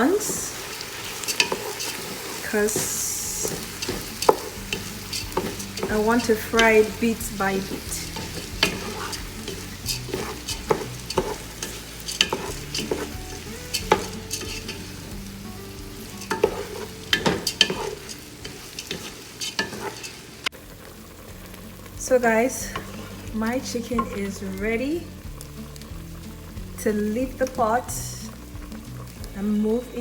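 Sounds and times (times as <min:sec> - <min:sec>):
rice sizzling in hot oil: 0:00.0 - 0:30.0
spoon scraping a pot: 0:01.0 - 0:20.3.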